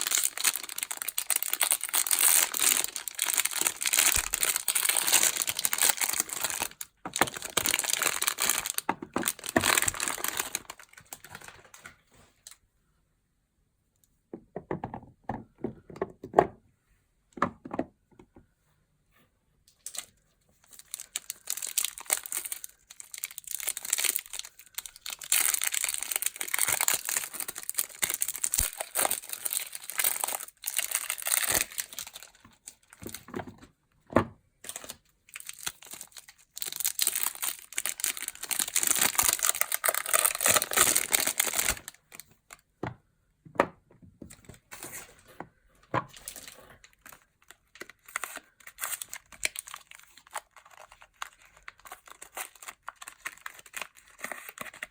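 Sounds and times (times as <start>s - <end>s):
packaging crinkling and tearing: 0.0s - 12.5s, 19.8s - 33.4s, 34.6s - 42.6s, 46.1s - 54.9s.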